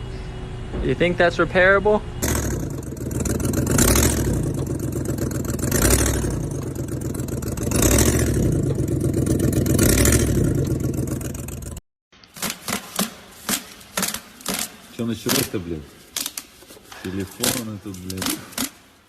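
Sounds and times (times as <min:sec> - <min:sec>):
vehicle engine clattering: 0:02.2 - 0:11.8.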